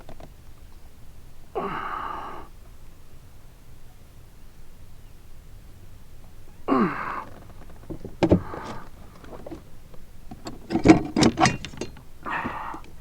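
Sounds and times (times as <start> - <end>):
man grunting exhale: 1.6 - 2.5, 6.7 - 7.4, 12.3 - 12.8
gear knocking and rattling: 7.2 - 13.0.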